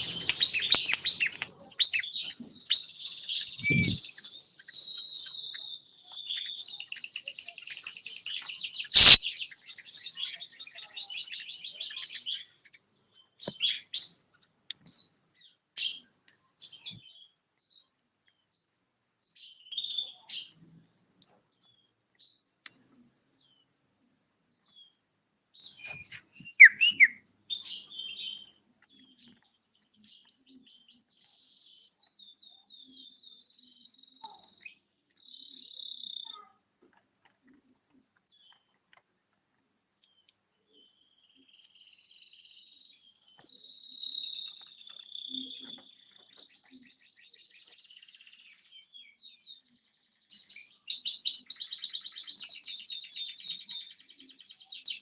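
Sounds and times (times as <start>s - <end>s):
bird chirping and trilling: 0.0s - 12.8s, 25.6s - 29.4s.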